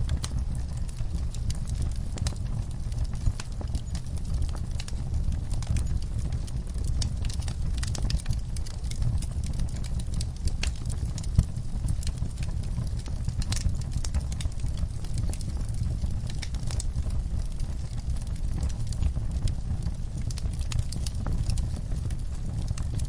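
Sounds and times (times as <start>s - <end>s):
fireplace fire rumbling: 0.0s - 23.0s
wood crackling and popping: 0.0s - 23.0s.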